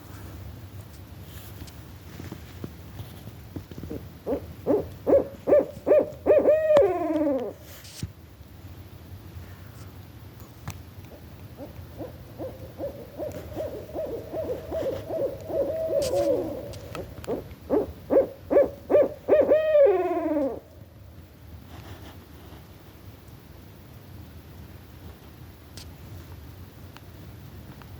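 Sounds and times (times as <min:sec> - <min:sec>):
owls hooting: 0:03.9 - 0:07.7, 0:11.1 - 0:20.8.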